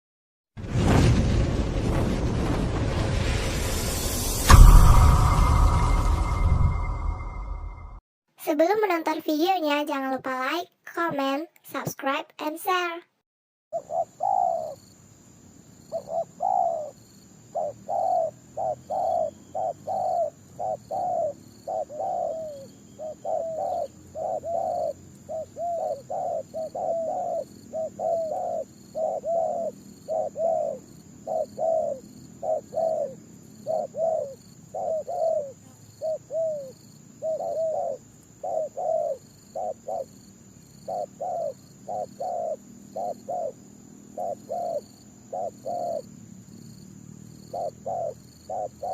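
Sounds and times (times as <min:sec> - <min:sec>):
doves cooing: 0:16.0 - 0:17.0, 0:17.6 - 0:40.2, 0:40.8 - 0:43.6, 0:44.2 - 0:46.0, 0:47.5 - 0:48.9.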